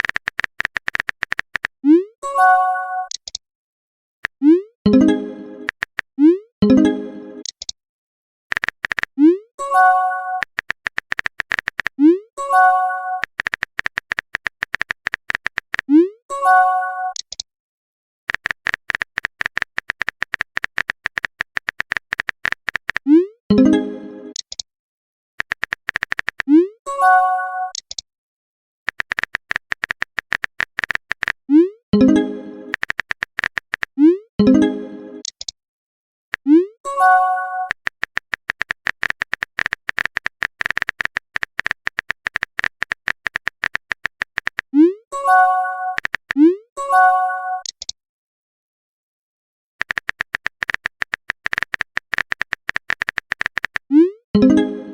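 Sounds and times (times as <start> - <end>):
keyboard typing clicks: 0.0 - 2.1, 3.1 - 3.4, 4.2 - 7.8, 8.5 - 9.4, 10.4 - 12.2, 13.2 - 16.1, 17.1 - 17.4, 18.3 - 24.6, 25.4 - 26.6, 27.7 - 28.0, 28.9 - 34.5, 35.2 - 35.6, 37.6 - 44.9, 45.9 - 46.6, 47.6 - 48.0, 49.8 - 54.9
keyboard tap clicks: 5.6 - 6.1, 13.2 - 15.8, 32.7 - 33.9, 37.7 - 44.7, 46.0 - 46.4, 49.8 - 53.8
notification chime: 54.4 - 54.9.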